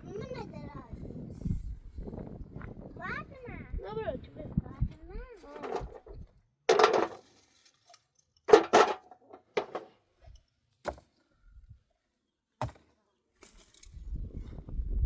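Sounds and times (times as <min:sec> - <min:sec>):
short knocks and clatters: 0:05.5 - 0:07.3, 0:08.5 - 0:10.0.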